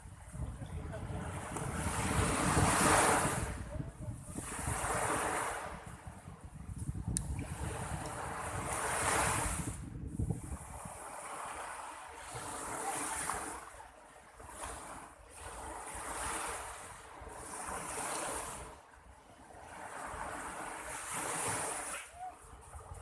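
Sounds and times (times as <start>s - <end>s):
wind on microphone: 0.0s - 13.7s, 19.4s - 23.0s
sea waves breaking: 0.0s - 23.0s.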